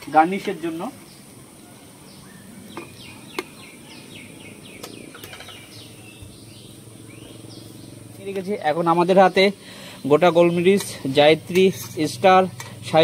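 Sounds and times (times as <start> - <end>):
bird chirping: 0.0 - 12.4
low hum: 4.3 - 10.0.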